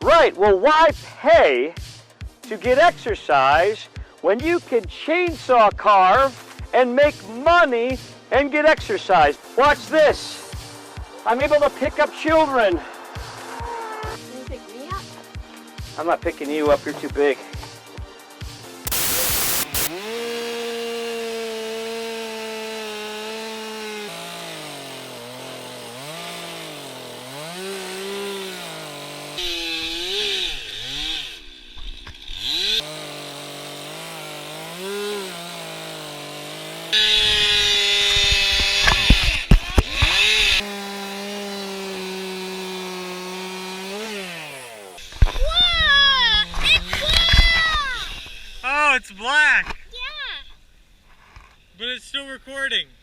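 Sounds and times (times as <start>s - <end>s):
chainsaw cutting wood: 9.2s - 13.5s, 18.6s - 48.6s
chainsaw revving: 18.8s - 45.4s.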